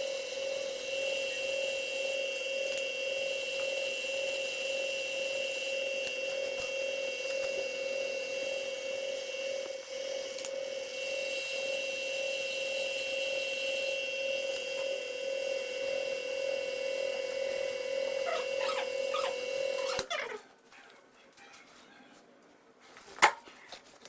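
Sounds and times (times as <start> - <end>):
test machine whining: 6.3 - 20.1.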